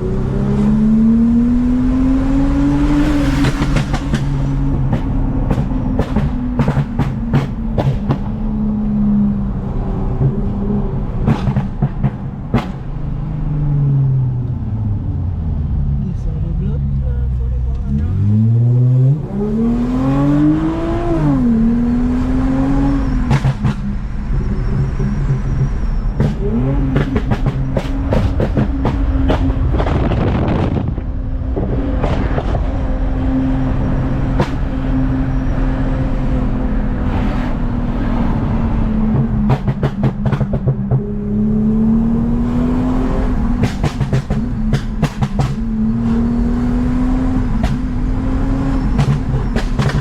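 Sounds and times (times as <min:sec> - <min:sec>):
car engine revving: 0:00.0 - 0:50.0
exhaust crackles: 0:23.2 - 0:32.7.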